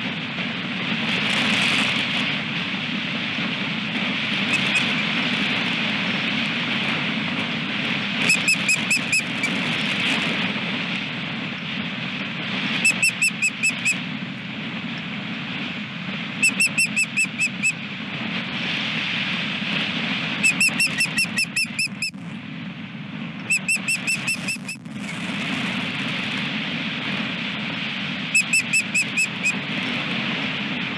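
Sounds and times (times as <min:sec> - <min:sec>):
steady wind noise: 0:00.0 - 0:30.9
osprey high whistled chirps: 0:04.5 - 0:04.9, 0:08.3 - 0:09.6, 0:12.8 - 0:14.0, 0:16.4 - 0:17.8, 0:20.4 - 0:22.2, 0:23.4 - 0:24.8, 0:28.4 - 0:29.6.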